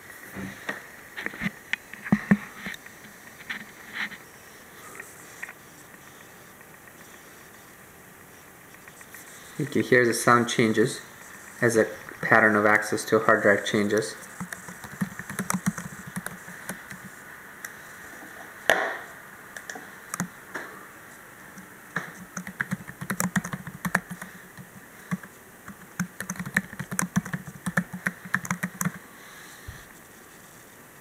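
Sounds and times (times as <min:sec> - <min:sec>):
laptop crackling static: 0:00.0 - 0:31.0.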